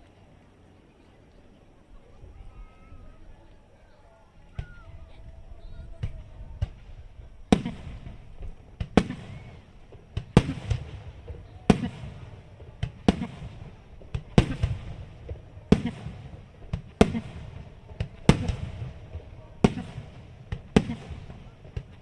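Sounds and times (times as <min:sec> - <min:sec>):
small firework cracks: 0:04.5 - 0:22.0
rumbling echo: 0:05.3 - 0:22.0
firework shells bursting: 0:06.0 - 0:22.0.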